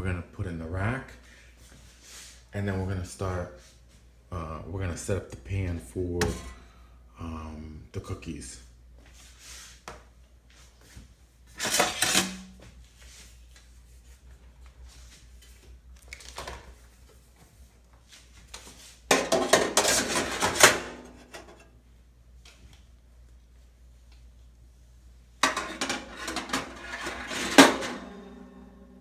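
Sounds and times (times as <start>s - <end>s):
wire rack and metal pan clattering: 11.6s - 12.6s, 19.1s - 21.6s, 25.4s - 29.0s.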